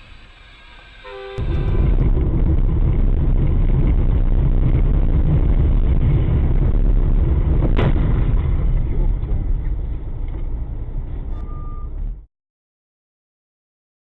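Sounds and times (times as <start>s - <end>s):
vehicle road and engine rumble: 0.0s - 12.3s
short beep: 11.3s - 12.1s.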